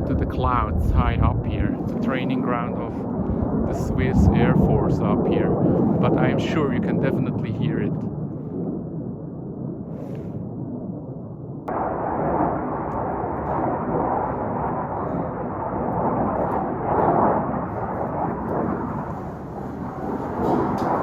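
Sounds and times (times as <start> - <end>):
jet engines rumbling overhead: 0.0 - 21.0.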